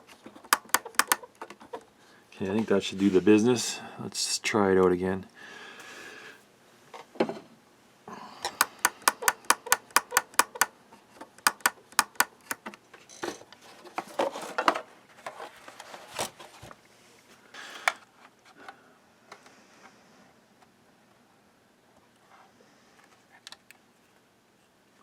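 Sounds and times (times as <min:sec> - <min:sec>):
radio clicks and pops: 0:00.5 - 0:01.3, 0:08.6 - 0:10.7, 0:11.4 - 0:12.6.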